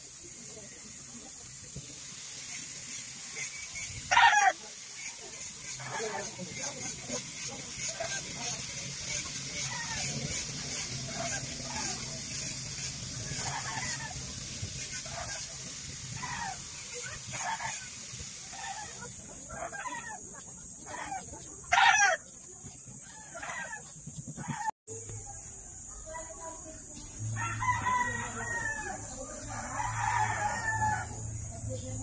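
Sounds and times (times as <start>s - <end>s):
chickens clucking: 2.4s - 24.7s.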